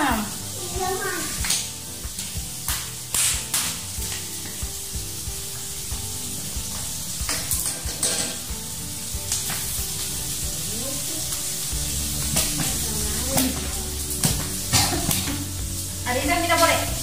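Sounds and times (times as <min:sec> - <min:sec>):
food sizzling in a wok: 0:00.0 - 0:17.0
utensil clinking and scraping: 0:07.3 - 0:08.4.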